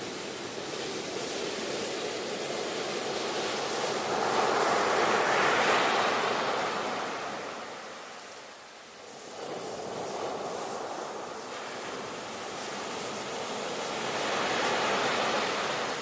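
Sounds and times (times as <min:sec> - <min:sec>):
ocean waves breaking: 0:09.1 - 0:16.0.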